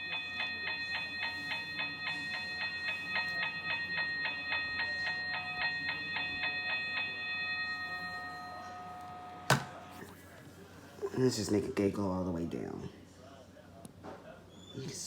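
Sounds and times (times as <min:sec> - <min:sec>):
mechanical bell ringing rapidly: 0:00.0 - 0:08.6.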